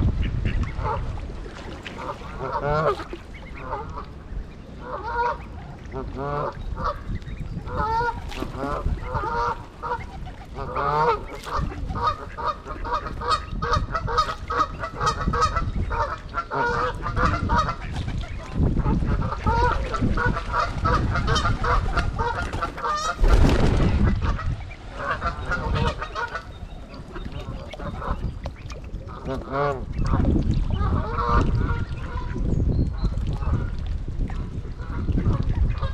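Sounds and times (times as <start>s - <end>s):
geese honking: 2.0s - 7.0s, 7.7s - 17.9s, 19.2s - 23.2s, 25.0s - 28.3s.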